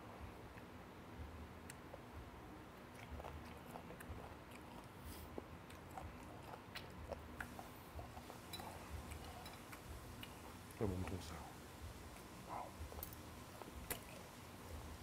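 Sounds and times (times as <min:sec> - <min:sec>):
person chewing food: 0:02.8 - 0:11.2, 0:12.0 - 0:14.8.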